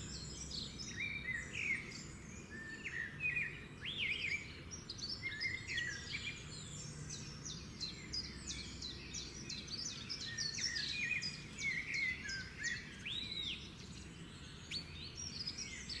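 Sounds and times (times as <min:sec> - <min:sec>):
finches chirping and twittering: 0:00.0 - 0:16.0.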